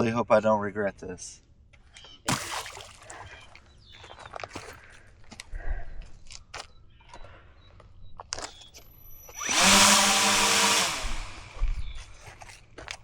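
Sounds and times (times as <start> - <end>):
motor and propeller whine: 9.2 - 12.0.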